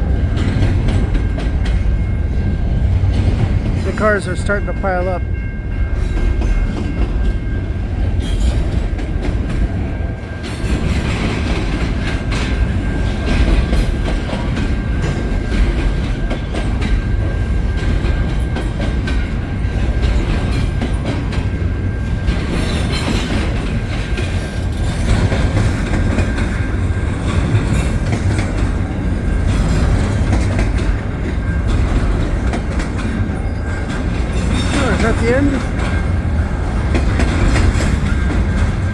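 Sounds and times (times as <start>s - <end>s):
freight train cars rumbling: 0.0s - 38.9s
wheels clattering over rail joints: 0.0s - 38.9s.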